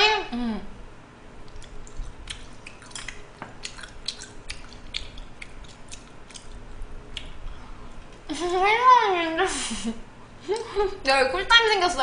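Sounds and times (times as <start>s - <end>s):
wet chewing clicks and smacks: 1.4s - 7.4s.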